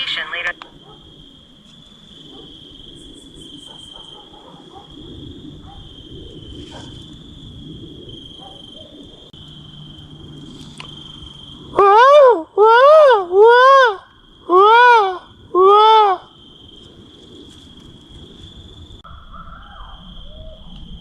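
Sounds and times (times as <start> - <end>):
radio static hiss: 0.0 - 0.6
cricket trill: 0.0 - 21.0.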